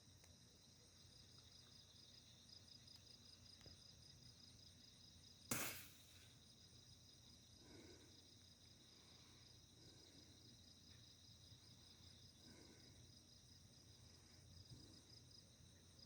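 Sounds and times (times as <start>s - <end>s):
crickets chirping: 0.0s - 16.0s
sharp click: 5.5s - 6.0s.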